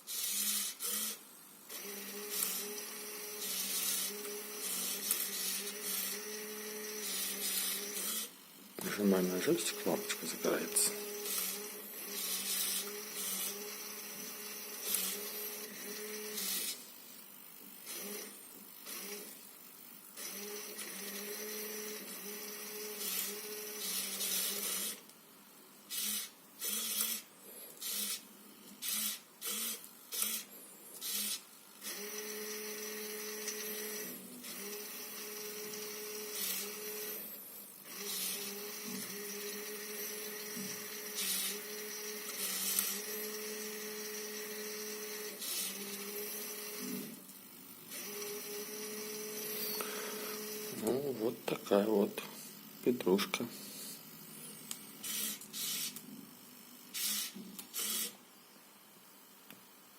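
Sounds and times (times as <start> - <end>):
small electric motor whirring: 0.0 - 25.2, 25.8 - 58.2.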